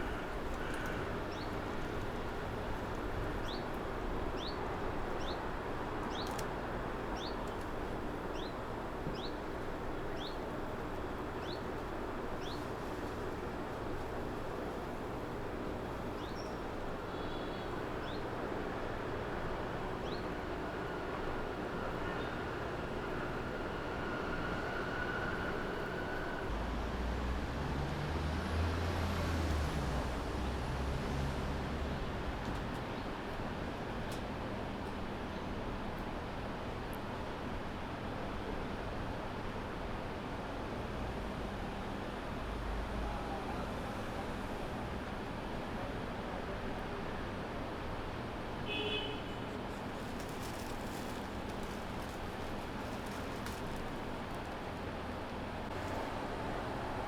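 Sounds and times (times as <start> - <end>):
street ambience hum: 0.0 - 57.0
vehicle engine rumble: 49.6 - 57.0.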